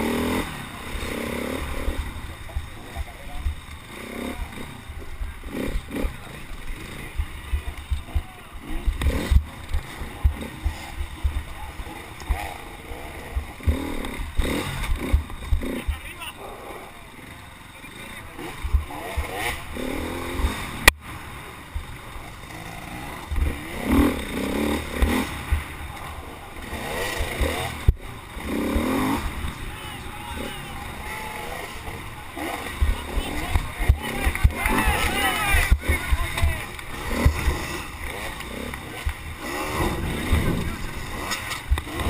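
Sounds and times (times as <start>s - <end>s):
race vehicle engine: 0.0s - 42.0s.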